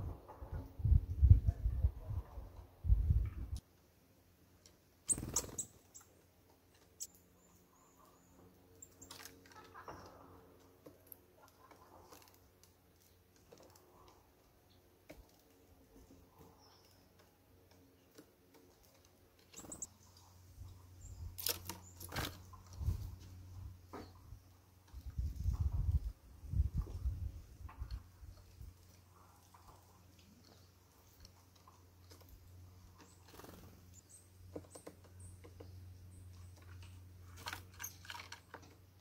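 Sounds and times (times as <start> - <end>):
thin high bird calls: 5.1 - 6.2, 19.5 - 22.7
birds tapping on wooden feeder: 34.4 - 35.9.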